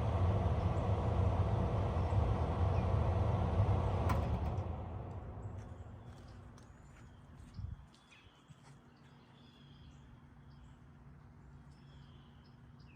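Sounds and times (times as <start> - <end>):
faint steady hum: 0.0 - 7.9
heat pump low rumble: 0.0 - 7.9.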